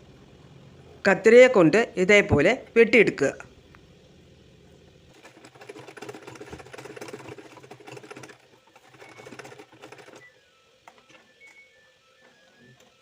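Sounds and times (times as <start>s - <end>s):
sewing machine stitching: 5.1s - 10.4s.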